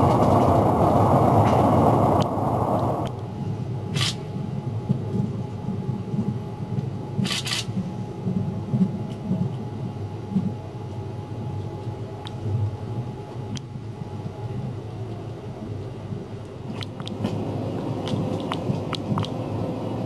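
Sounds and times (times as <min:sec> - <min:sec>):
wheels rumbling on rail: 0:00.0 - 0:07.0, 0:14.2 - 0:20.0
faint steady hum: 0:00.0 - 0:20.0.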